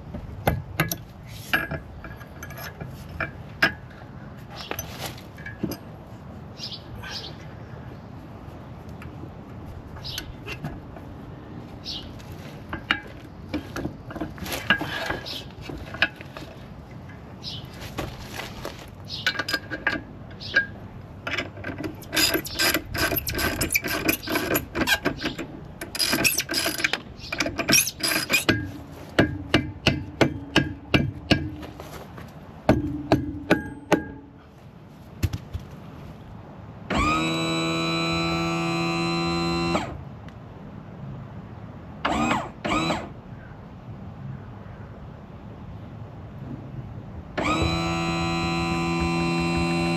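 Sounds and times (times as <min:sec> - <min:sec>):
metal knocks and clanks: 0:32.7 - 0:34.4
pump motor humming: 0:47.4 - 0:49.9.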